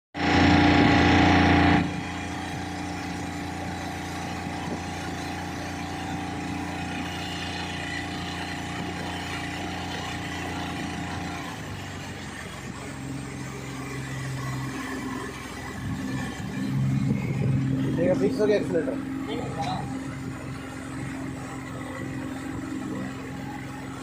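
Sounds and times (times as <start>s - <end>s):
outboard engine running: 0.2s - 24.0s.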